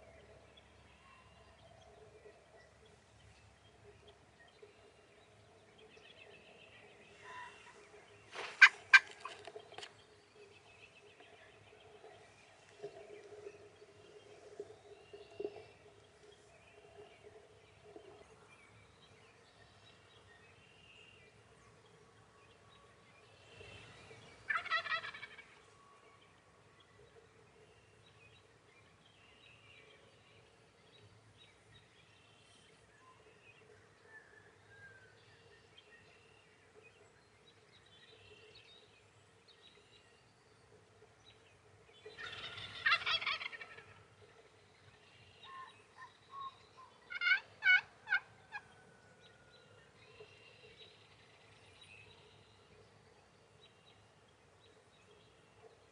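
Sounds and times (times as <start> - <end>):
faint songbird chirps: 0.0 - 55.9
turkey gobbling: 8.4 - 9.5, 24.5 - 25.6, 42.2 - 44.0, 47.1 - 48.7.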